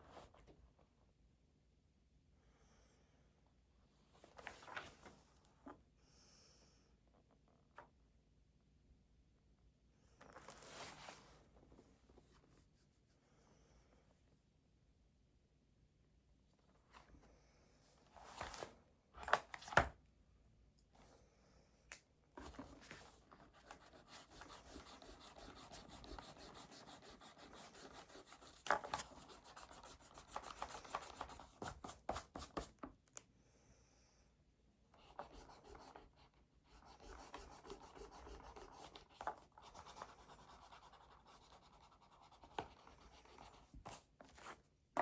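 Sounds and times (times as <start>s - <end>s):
pen scratching on paper: 23.5s - 32.7s, 35.0s - 44.6s.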